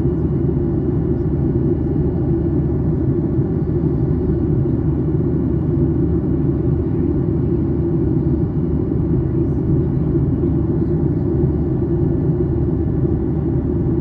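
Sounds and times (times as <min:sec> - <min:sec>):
aircraft cabin engine noise: 0:00.0 - 0:14.0.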